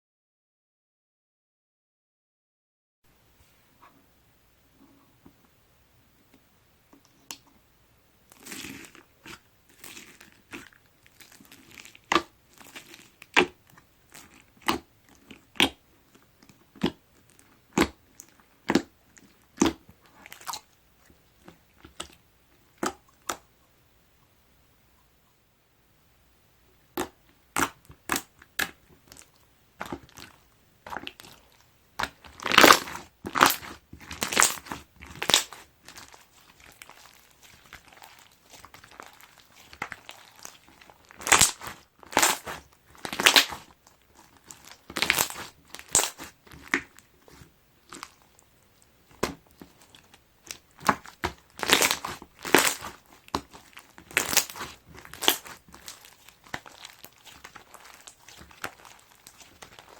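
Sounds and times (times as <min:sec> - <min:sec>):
crunchy slime squeezed by hand: 0:08.3 - 0:15.8, 0:27.0 - 0:48.4, 0:49.0 - 0:59.9.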